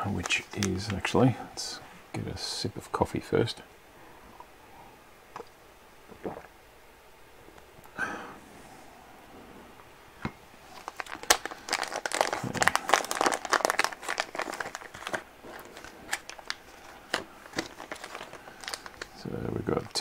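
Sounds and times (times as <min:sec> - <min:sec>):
plastic bag crinkling: 0:00.0 - 0:01.3, 0:10.6 - 0:20.0.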